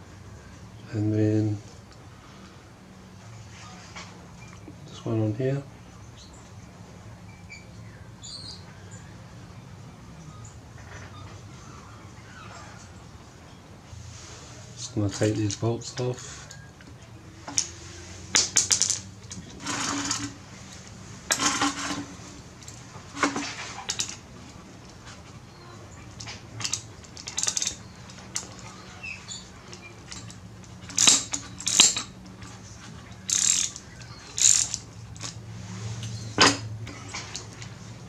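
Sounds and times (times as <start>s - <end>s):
hand tools clicking and clinking: 14.8s - 38.0s.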